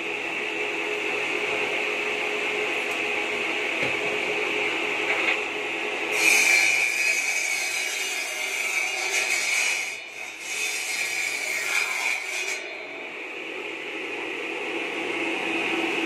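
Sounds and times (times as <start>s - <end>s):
saw cutting bamboo: 6.1s - 12.8s.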